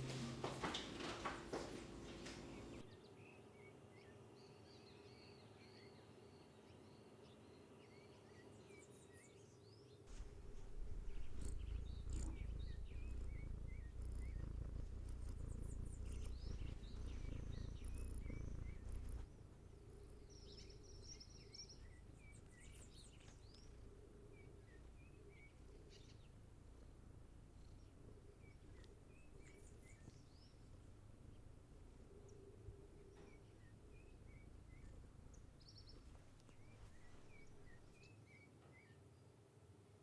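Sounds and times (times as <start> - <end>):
small birds chirping: 0.0 - 3.4, 4.0 - 39.0
low steady rumble: 10.1 - 37.8.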